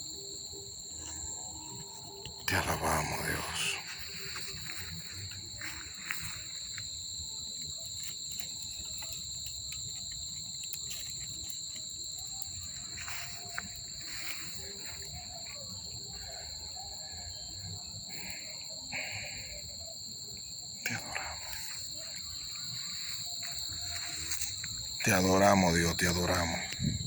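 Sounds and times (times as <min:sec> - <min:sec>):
crickets chirring: 0:00.0 - 0:27.0
faint clicks: 0:07.6 - 0:14.7.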